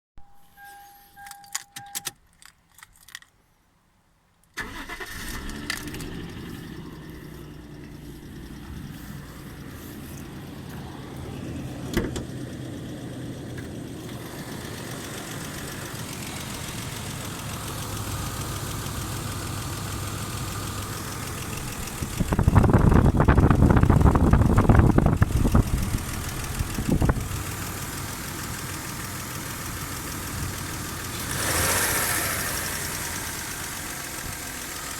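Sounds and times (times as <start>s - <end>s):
short chime: 0.2s - 2.0s
car engine starting and idling: 4.5s - 34.9s
engine knock: 14.6s - 34.9s.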